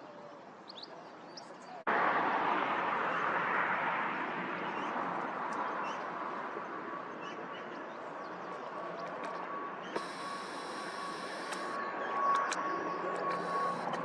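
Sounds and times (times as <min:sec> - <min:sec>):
jet airliner engine roar: 0:01.9 - 0:14.0
faint bird chirps: 0:09.8 - 0:13.9.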